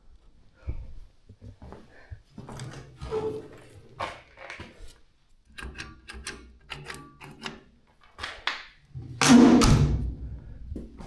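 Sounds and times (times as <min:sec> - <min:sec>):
sharp clicks and knocks: 0:05.5 - 0:08.7.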